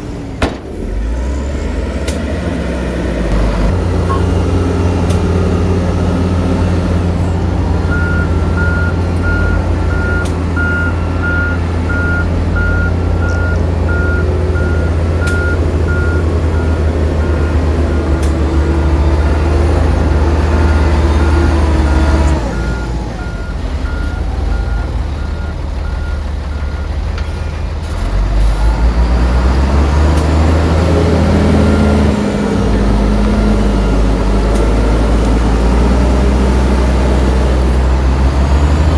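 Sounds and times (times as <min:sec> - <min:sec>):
heavy diesel engine running: 0:00.0 - 0:38.9
reversing alarm beeping: 0:04.0 - 0:04.5, 0:07.8 - 0:27.0.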